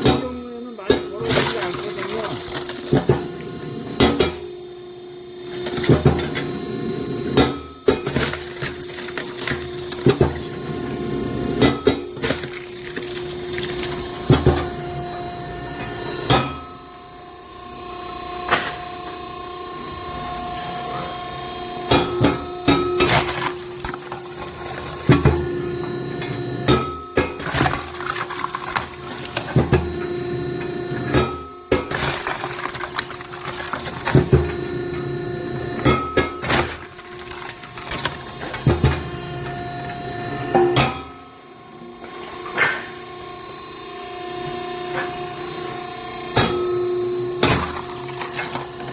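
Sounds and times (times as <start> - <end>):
log splitter humming: 0.0 - 4.5, 7.4 - 15.9, 21.8 - 39.5, 47.4 - 48.9
wood cracking and knocking: 23.0 - 25.4, 27.2 - 29.9, 31.8 - 34.6, 36.4 - 38.9, 47.4 - 48.9.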